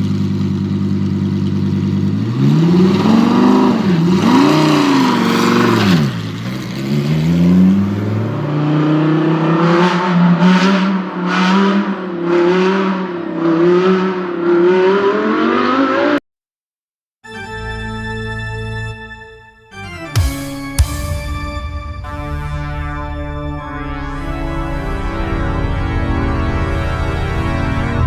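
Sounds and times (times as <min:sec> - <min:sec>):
car engine revving: 0:00.0 - 0:16.2, 0:22.0 - 0:28.0.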